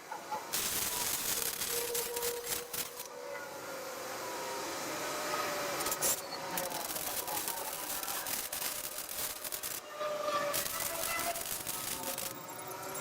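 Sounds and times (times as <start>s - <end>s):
welder arc hissing and crackling: 0.5s - 3.1s, 5.5s - 13.0s.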